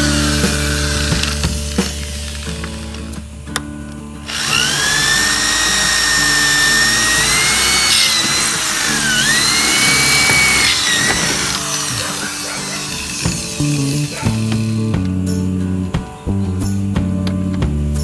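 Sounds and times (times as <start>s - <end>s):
power tool whining: 0.0s - 15.4s
background music: 0.0s - 18.0s.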